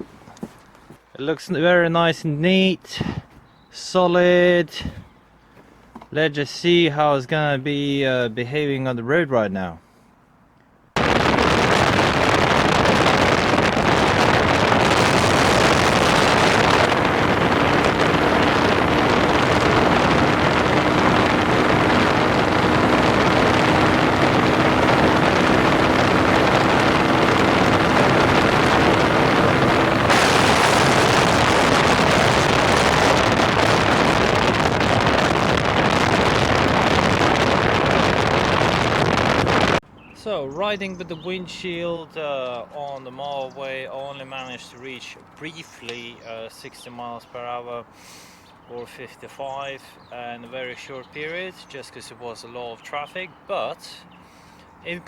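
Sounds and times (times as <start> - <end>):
wind roaring over microphone: 11.0 - 39.8
faint motorcycle engine hum: 11.0 - 46.1.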